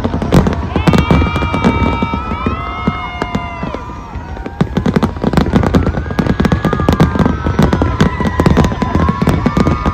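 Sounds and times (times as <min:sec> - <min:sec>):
fireworks bangs and crackles: 0:00.0 - 0:09.9.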